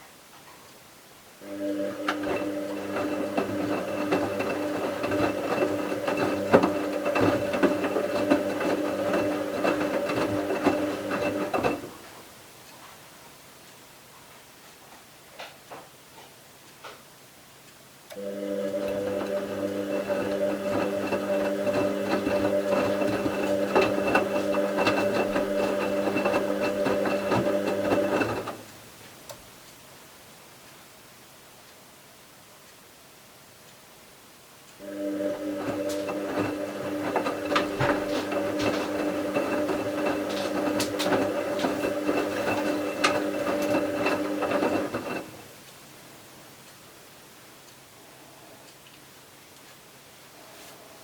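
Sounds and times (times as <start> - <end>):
washing machine motor humming: 1.4 - 12.2, 18.1 - 28.7, 34.8 - 45.5
drum and laundry clicks and knocks: 1.5 - 12.8, 18.2 - 29.6, 34.7 - 45.8.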